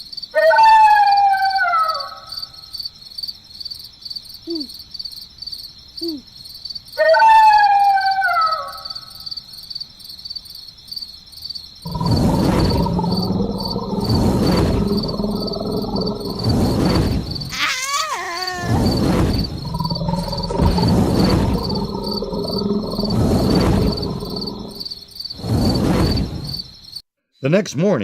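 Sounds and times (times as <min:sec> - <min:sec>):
crickets chirring: 0:02.0 - 0:07.0, 0:08.8 - 0:27.0
loud rumbling: 0:11.9 - 0:17.6, 0:18.7 - 0:24.8
long falling howls: 0:11.9 - 0:24.8.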